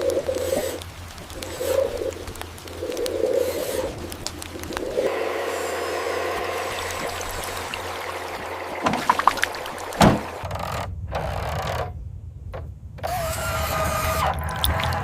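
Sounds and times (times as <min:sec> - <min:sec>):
small electric motors whirring: 0:00.0 - 0:04.1, 0:13.0 - 0:15.0
steady motor whine: 0:05.1 - 0:09.0, 0:13.0 - 0:15.0.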